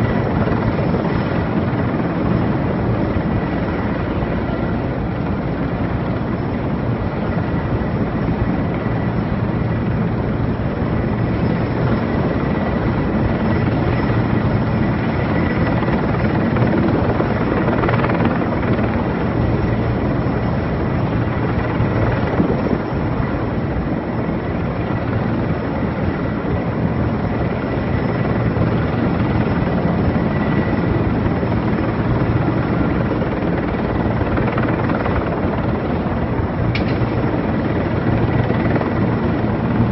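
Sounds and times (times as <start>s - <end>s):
helicopter rotor beating: 0.0s - 39.9s.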